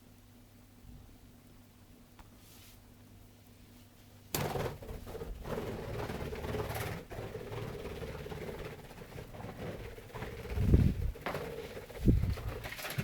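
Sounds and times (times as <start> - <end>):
bird wings flapping: 4.4 - 13.0.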